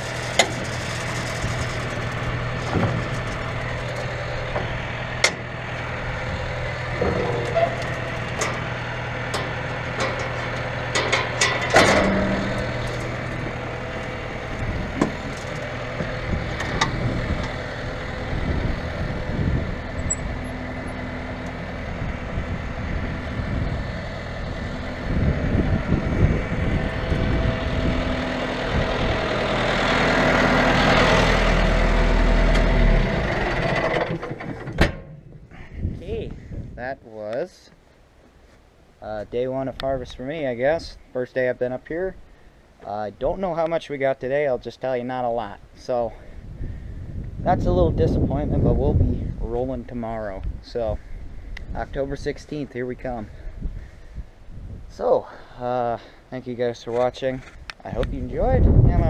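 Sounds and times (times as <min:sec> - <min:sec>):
engine humming: 0:00.0 - 0:36.8.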